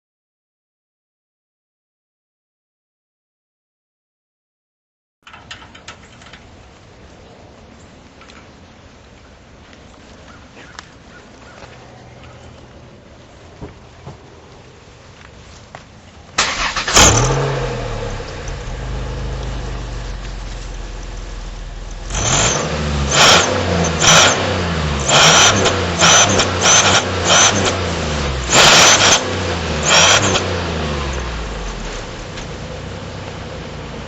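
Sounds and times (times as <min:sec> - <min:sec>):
car engine starting and revving: 0:16.4 - 0:34.0.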